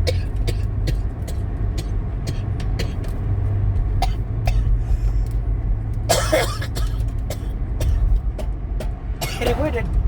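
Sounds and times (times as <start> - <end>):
woman coughing: 6.1 - 8.0, 9.2 - 9.7.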